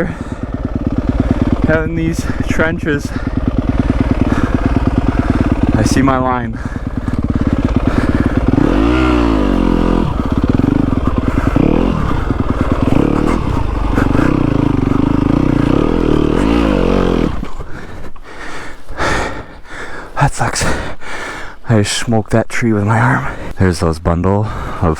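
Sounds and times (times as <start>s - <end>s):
dirt bike engine revving: 0.0s - 19.6s.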